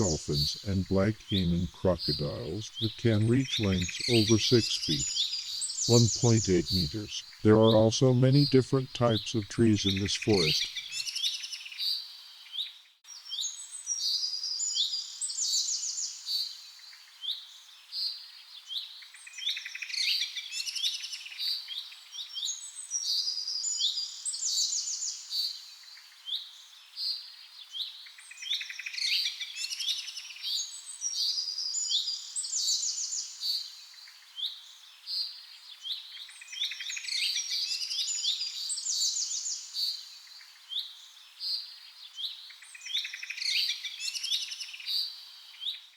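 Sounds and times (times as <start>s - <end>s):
birds chirping in chorus: 0.0s - 11.9s.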